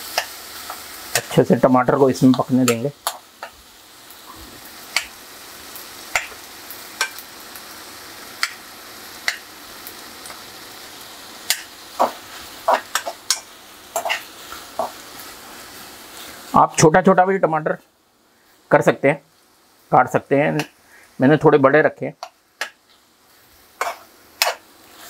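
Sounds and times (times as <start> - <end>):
onions and tomatoes sizzling: 0.0 - 25.0
metal spoon scraping a pan: 11.5 - 15.0, 22.2 - 25.0.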